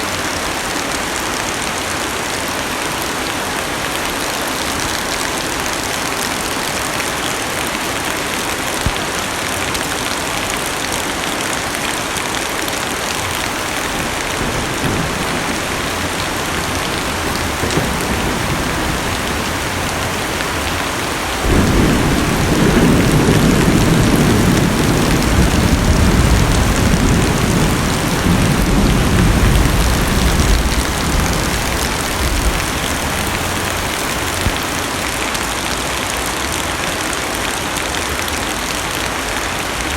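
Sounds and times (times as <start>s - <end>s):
rain pattering on car roof: 0.1s - 39.9s
thunder rumbling: 12.9s - 34.8s.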